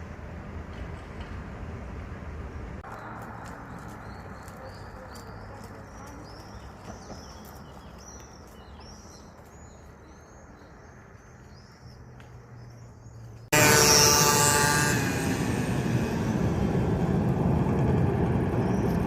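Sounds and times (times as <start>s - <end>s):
birds chirping: 2.8s - 15.3s
steady low rumble: 15.0s - 19.0s.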